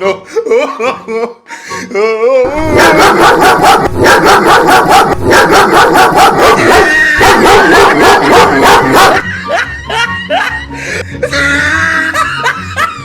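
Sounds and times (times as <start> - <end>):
recorded dog barking: 2.5 - 9.3.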